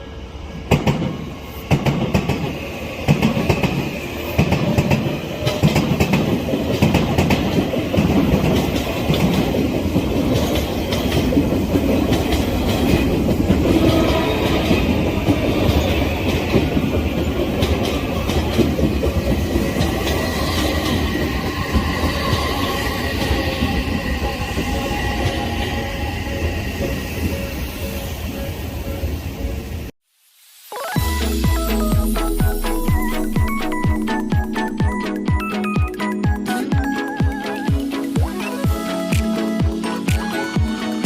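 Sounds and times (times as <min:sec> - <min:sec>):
train wheels clacking over rail joints: 0:03.1 - 0:24.0.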